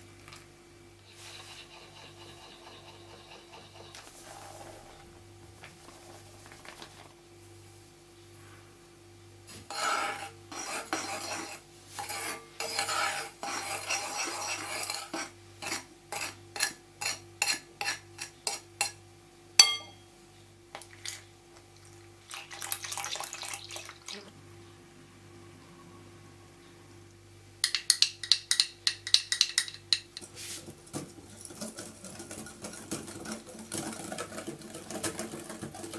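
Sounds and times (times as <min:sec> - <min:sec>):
spoon scraping glass bowl: 0:01.0 - 0:05.0, 0:09.7 - 0:19.0
spoon clinking on glass bowl: 0:19.6 - 0:20.0.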